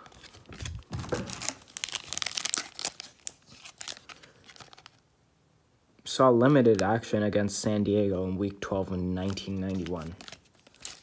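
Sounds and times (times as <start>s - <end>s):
trading cards being handled: 0.0s - 5.0s, 9.2s - 11.0s.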